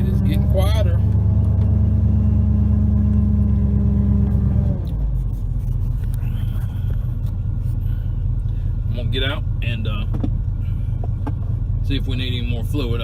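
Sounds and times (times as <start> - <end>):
power steering pump groaning: 2.9 - 13.0
engine idling: 4.8 - 13.0.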